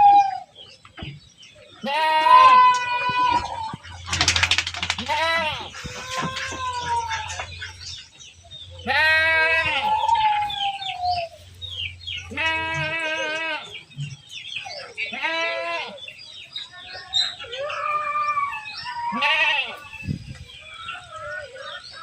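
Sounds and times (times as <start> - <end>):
goats bleating: 1.8 - 3.7, 5.0 - 7.6, 8.8 - 10.9, 12.2 - 13.8, 19.0 - 19.8.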